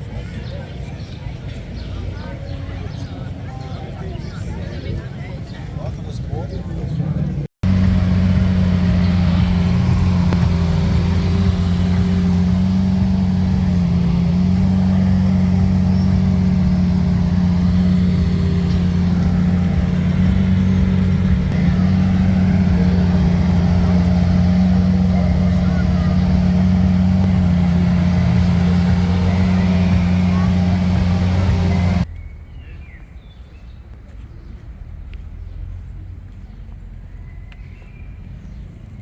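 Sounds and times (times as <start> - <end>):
car engine idling: 7.4 - 32.1.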